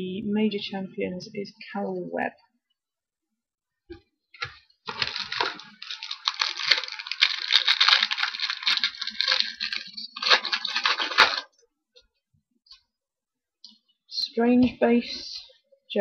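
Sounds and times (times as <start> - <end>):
wrapper crinkling and tearing: 4.4 - 11.6.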